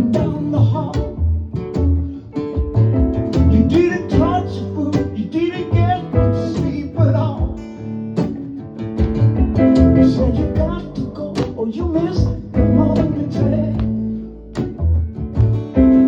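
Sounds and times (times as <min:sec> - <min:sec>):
acoustic guitar playing: 0:00.0 - 0:16.0.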